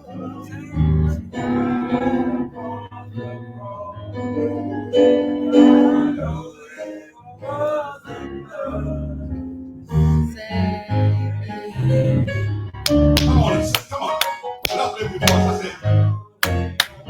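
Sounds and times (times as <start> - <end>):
person singing a gospel hymn: 0.0 - 12.2, 12.9 - 17.0
low bass notes: 8.7 - 13.8.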